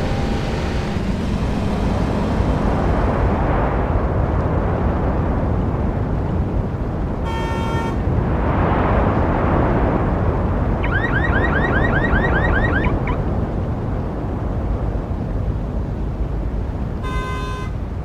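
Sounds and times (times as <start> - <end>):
street traffic rumbling: 0.0 - 18.0
car horn toot: 7.2 - 8.0, 17.0 - 17.8
car alarm chirps: 10.8 - 13.2.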